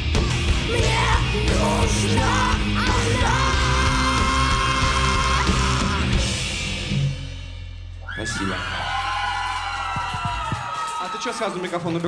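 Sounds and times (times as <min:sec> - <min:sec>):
electric guitars: 0:00.0 - 0:07.2
live rock band playing: 0:00.0 - 0:07.5
loud drums: 0:00.0 - 0:12.0.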